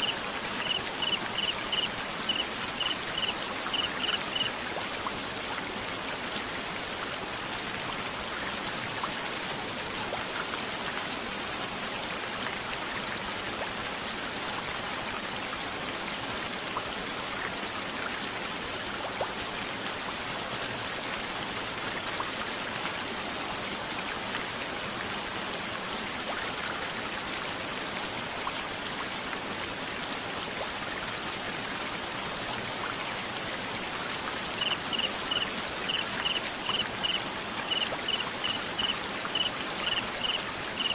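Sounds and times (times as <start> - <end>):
cricket chirps: 0.0 - 4.5, 34.6 - 40.9
steady rain patter: 0.0 - 40.9
faint drips: 0.6 - 4.5.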